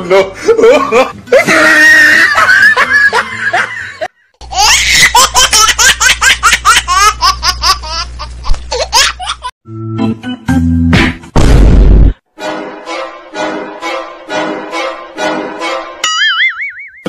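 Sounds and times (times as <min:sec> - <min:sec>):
high-pitched laughter: 0:00.5 - 0:09.5.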